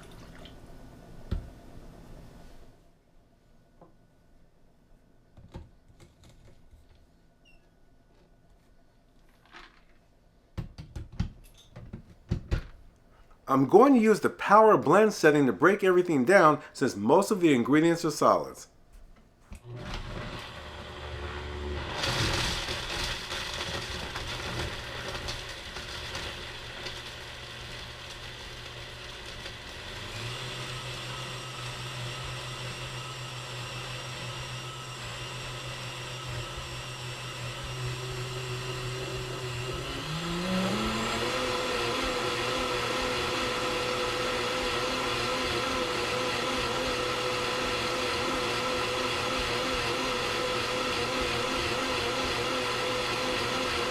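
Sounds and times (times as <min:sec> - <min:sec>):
blender motor chopping ice: 0:19.6 - 0:53.9.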